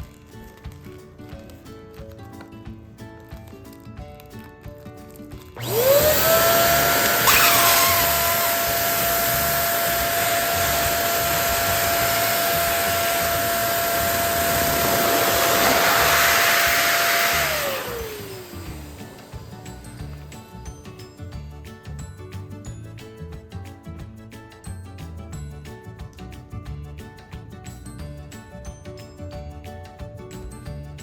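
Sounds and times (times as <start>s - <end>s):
electric air pump humming: 5.6s - 20.6s.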